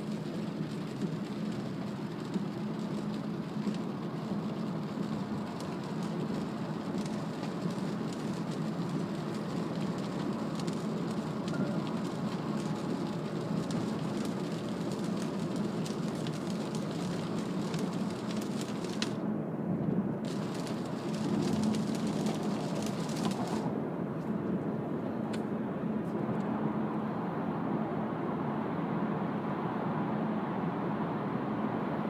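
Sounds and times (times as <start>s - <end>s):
raindrops hitting car: 0.0s - 19.2s, 20.2s - 23.7s
tyre and road noise: 0.0s - 26.7s.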